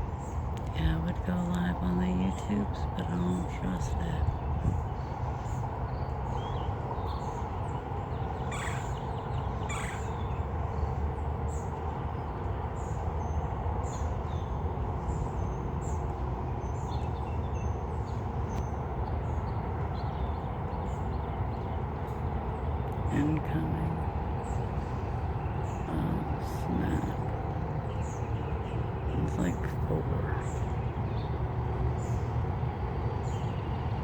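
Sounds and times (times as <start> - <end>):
steady low rumble: 0.0 - 34.0
harsh caw-like bird calls: 8.5 - 10.4.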